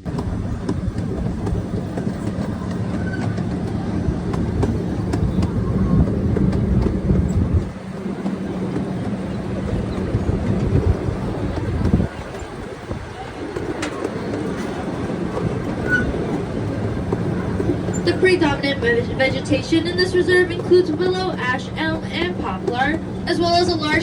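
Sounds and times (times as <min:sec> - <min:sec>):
train engine hum and rumble: 0:00.0 - 0:24.0
wheels clicking on rails: 0:00.0 - 0:24.0.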